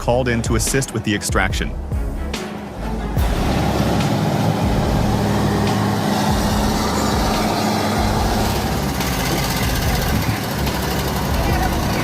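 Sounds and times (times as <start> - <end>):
diesel engine running: 2.7 - 12.0.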